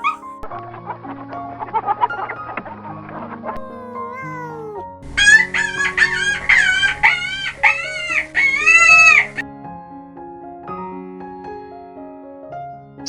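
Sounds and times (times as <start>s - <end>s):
small animal high-pitched calls: 0.0s - 0.4s, 3.6s - 9.4s.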